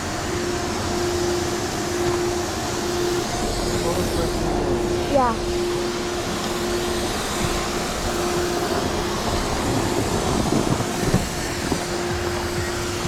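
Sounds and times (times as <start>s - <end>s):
low fan hum: 0.0s - 13.0s
hiss of air and water spray: 5.6s - 13.0s.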